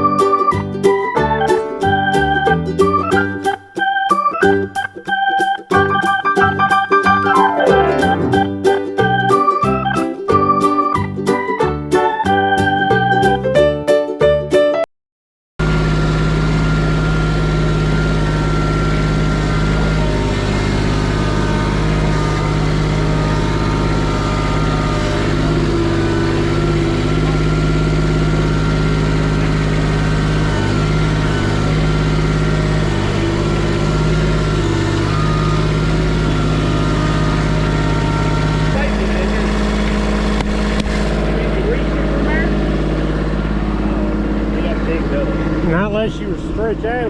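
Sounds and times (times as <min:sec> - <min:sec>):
engine idling: 0:15.6 - 0:47.0.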